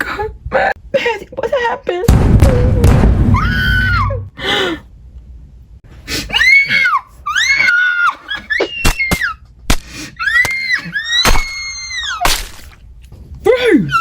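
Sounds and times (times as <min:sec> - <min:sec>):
woman screaming: 0:02.6 - 0:04.3.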